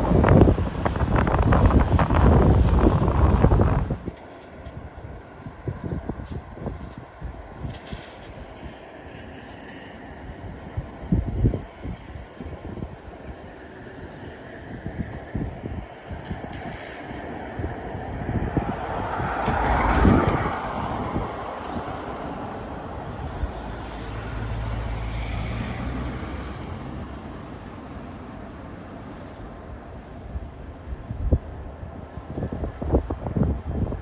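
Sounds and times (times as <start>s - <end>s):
low engine drone: 0.0s - 4.1s
vehicle passing by: 0.0s - 4.1s, 17.2s - 28.4s
wind buffeting microphone: 0.0s - 34.0s.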